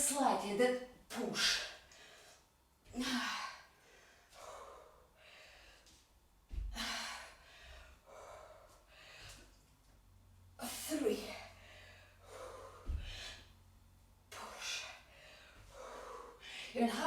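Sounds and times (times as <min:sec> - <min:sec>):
woman breathing hard: 0:01.5 - 0:09.6, 0:11.2 - 0:13.7, 0:14.3 - 0:17.0.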